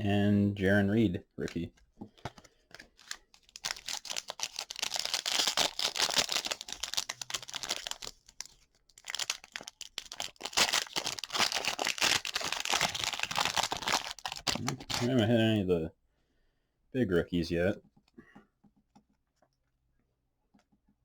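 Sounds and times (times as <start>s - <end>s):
plastic wrapper tearing and crinkling: 2.3s - 15.2s.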